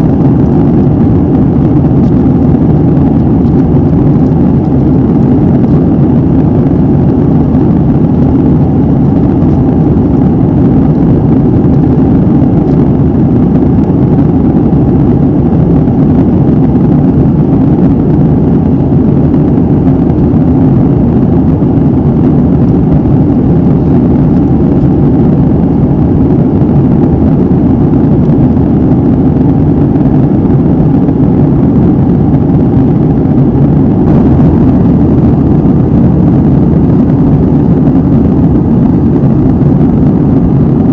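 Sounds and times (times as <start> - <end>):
jet engine cabin drone: 0.0 - 40.9.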